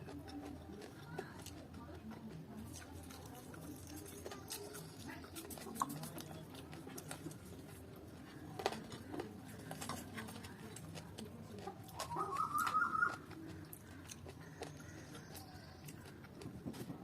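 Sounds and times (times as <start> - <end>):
chewing and mouth noises: 0.0 - 17.0
wavering high-pitched call: 12.0 - 13.2.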